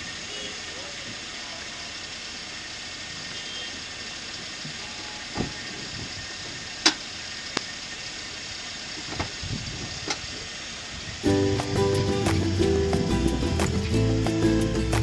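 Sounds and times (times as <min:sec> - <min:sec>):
car driving in heavy rain: 0:00.0 - 0:13.5.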